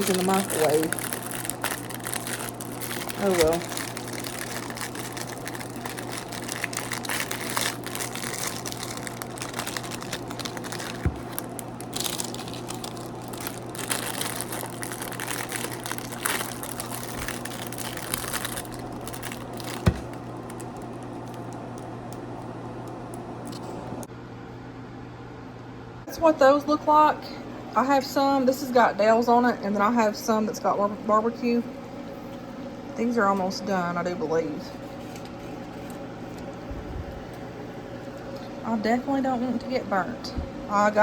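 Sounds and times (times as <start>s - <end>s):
food wrapping crinkling: 0.0s - 23.7s
steady low hum: 0.0s - 41.0s.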